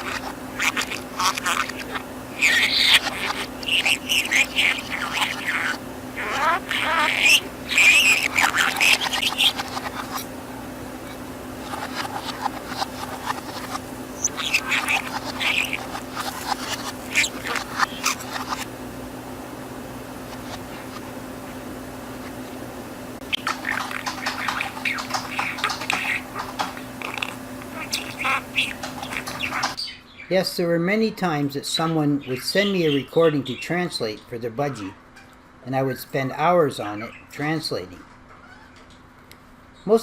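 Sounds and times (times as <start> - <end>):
budgerigar chattering: 0.0 - 10.3, 11.0 - 18.7, 20.3 - 21.1, 23.2 - 30.4, 31.8 - 36.2
steady low hum: 0.0 - 37.9.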